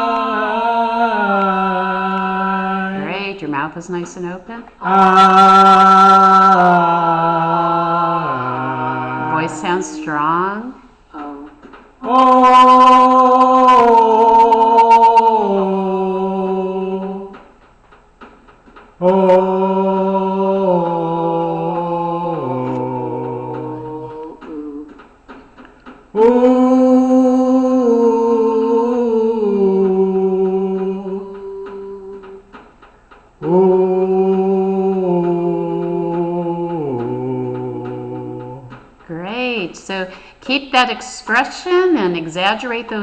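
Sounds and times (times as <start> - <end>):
person singing sustained vowels: 0.0 - 3.4, 4.7 - 17.5, 19.0 - 25.1, 26.1 - 32.6, 33.4 - 39.0.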